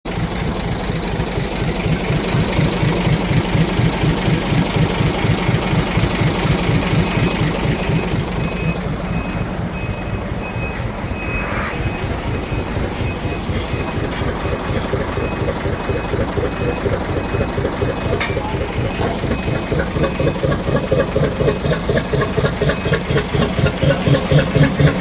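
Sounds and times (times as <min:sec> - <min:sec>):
truck diesel engine idling: 0:00.0 - 0:25.0
high electronic beep: 0:07.0 - 0:20.5.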